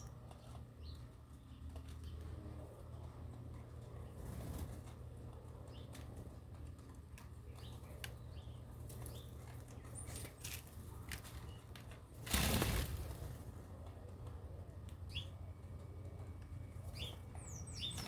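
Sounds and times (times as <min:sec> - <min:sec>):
wings flapping: 0:12.1 - 0:13.6.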